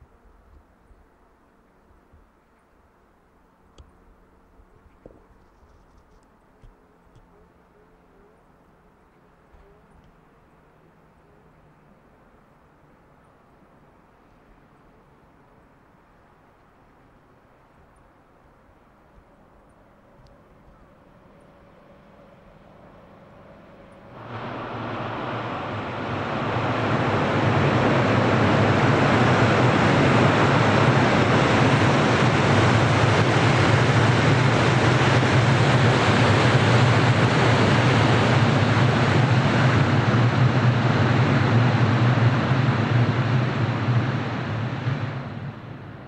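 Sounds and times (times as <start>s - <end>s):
train rumbling over bridge: 20.9s - 46.0s.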